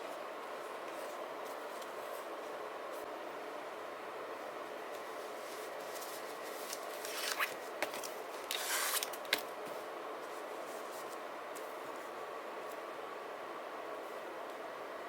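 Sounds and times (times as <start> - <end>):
steady background hiss: 0.0 - 15.0
paper rustling: 4.9 - 11.8.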